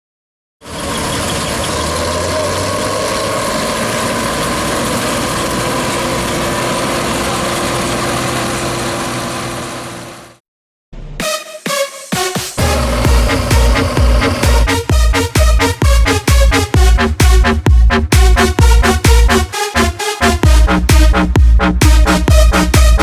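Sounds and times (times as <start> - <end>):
diesel engine running: 0.6 - 10.4, 12.6 - 19.5.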